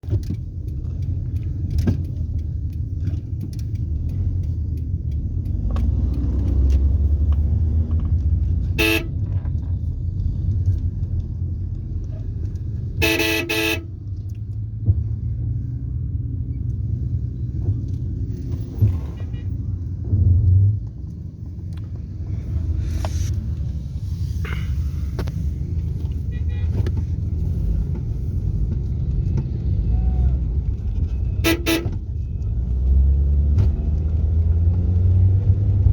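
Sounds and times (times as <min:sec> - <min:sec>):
road traffic rumble: 0:00.0 - 0:35.9
car horns honking: 0:08.6 - 0:09.3, 0:13.0 - 0:14.0, 0:26.1 - 0:27.1, 0:31.1 - 0:32.4.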